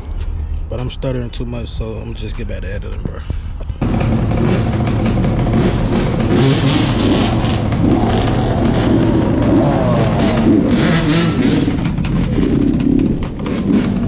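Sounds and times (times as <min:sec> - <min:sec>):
motorcycle engine running: 0:03.7 - 0:14.0
rushing noise: 0:03.8 - 0:14.0.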